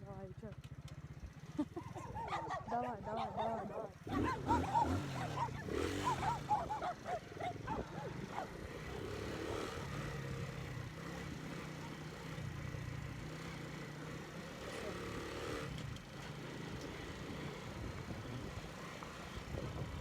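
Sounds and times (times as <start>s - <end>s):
motorcycle engine running: 0.0s - 20.0s
dog barking: 2.0s - 8.7s.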